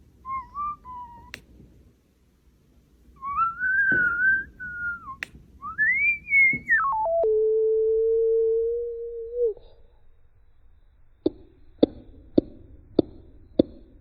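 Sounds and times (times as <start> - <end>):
sliding whistle note: 0.3 - 1.4, 3.2 - 10.0.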